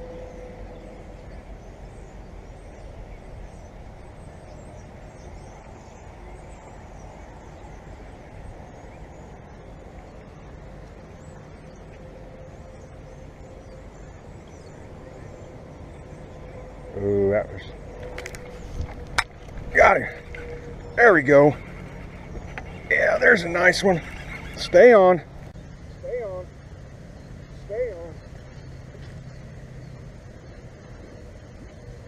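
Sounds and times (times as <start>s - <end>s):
wind buffeting microphone: 17.7s - 25.6s
faint high chirping: 19.7s - 26.5s.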